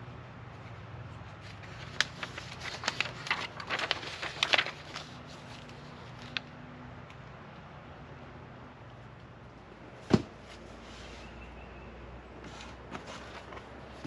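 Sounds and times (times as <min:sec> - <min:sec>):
low steady hum: 0:00.0 - 0:12.4
packaging crinkling and clicking: 0:01.8 - 0:06.4.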